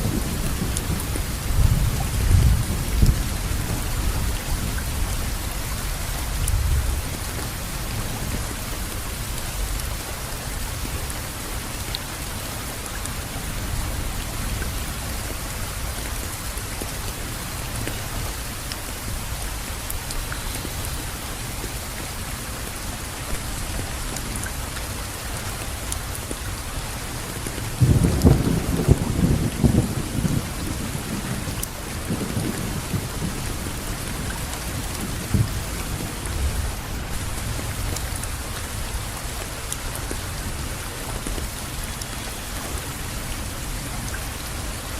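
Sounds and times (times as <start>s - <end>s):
rain pattering: 0.0s - 44.9s
thunder rumble: 27.8s - 37.9s.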